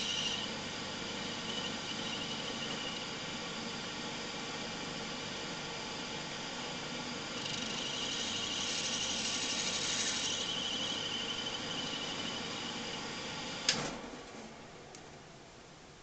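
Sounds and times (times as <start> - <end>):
brass squealing under cutter: 0.0 - 0.6, 1.2 - 3.2, 7.3 - 12.9
metal lathe running: 0.0 - 13.7.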